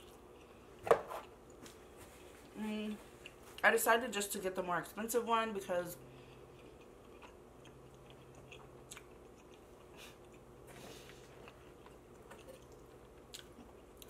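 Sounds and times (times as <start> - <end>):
chewing food: 6.1 - 14.0.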